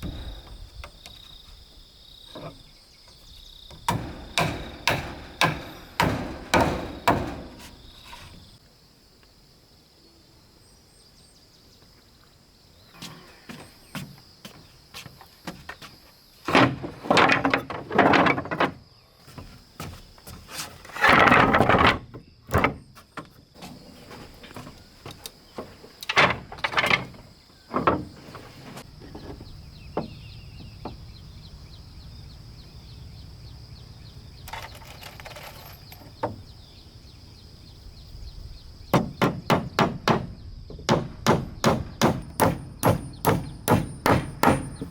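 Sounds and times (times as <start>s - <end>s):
high insect drone: 0.0s - 16.9s, 22.0s - 44.9s
timber scraping and knocking: 2.3s - 8.6s, 13.0s - 31.0s
sharp hammering blows: 3.7s - 8.0s, 38.9s - 44.9s.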